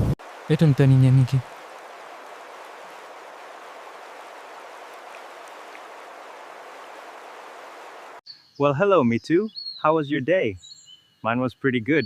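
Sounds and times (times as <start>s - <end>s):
running water hiss: 0.0s - 8.2s.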